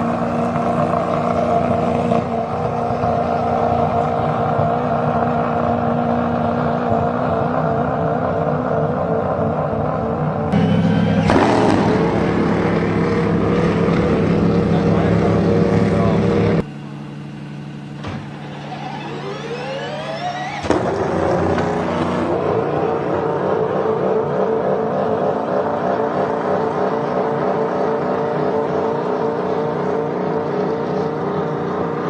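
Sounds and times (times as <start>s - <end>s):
car engine running: 0.0s - 32.0s
electric drive whine: 16.0s - 22.3s.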